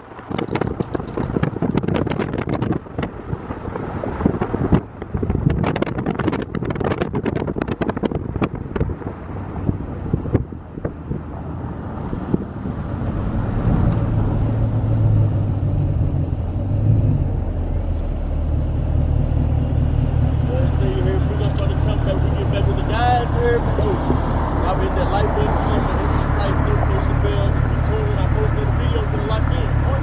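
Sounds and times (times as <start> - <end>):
car engine and road noise: 0.0 - 30.0
microphone crackles and clicks: 0.2 - 9.1.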